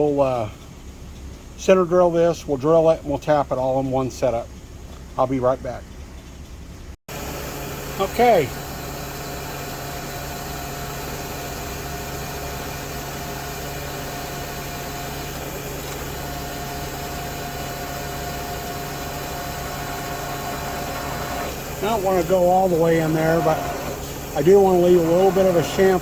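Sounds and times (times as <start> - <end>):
milling machine motor hum: 7.1 - 26.0.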